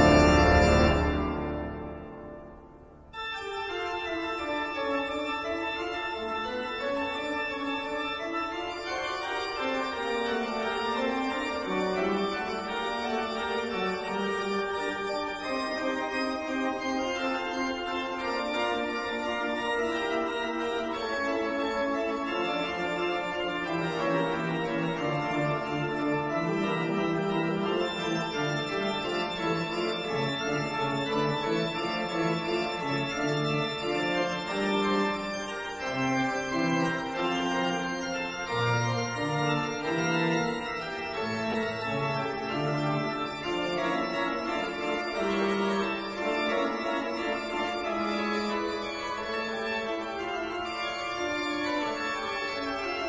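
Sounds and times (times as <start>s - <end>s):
organ music: 0.0s - 53.0s.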